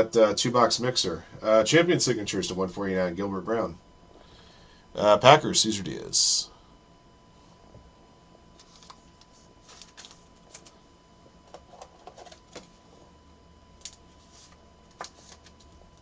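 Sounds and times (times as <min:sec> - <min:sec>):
faint steady tone: 0:00.0 - 0:16.0
trading cards handled: 0:08.6 - 0:10.8, 0:11.5 - 0:12.8, 0:13.8 - 0:15.9.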